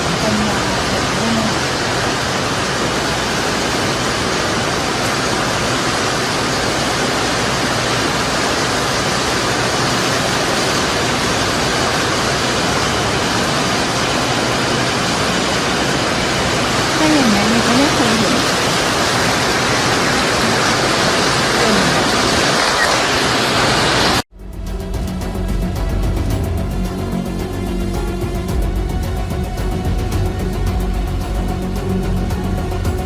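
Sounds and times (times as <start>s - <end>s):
heavy rain falling: 0.0s - 24.2s
wavering voice-like sound: 16.9s - 18.6s, 20.0s - 23.0s.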